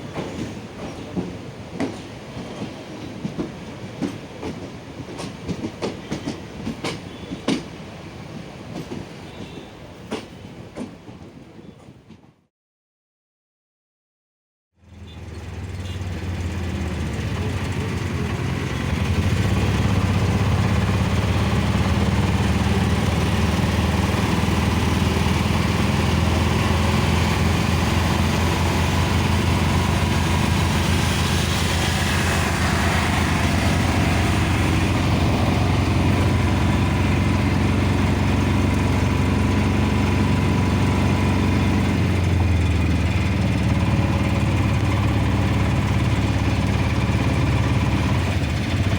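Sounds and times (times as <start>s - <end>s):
vehicle engine rumble with hiss: 14.8s - 48.9s.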